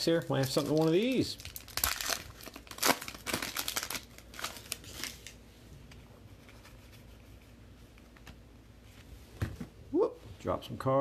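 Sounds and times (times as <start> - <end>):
wrapper crinkling: 0.0 - 5.4.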